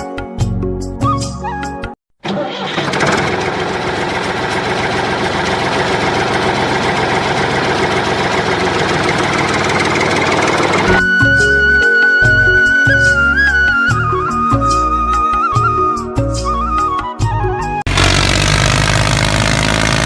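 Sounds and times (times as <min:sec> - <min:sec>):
music: 0:00.0 - 0:02.0, 0:10.9 - 0:17.9
small electric motor buzzing: 0:17.9 - 0:20.0.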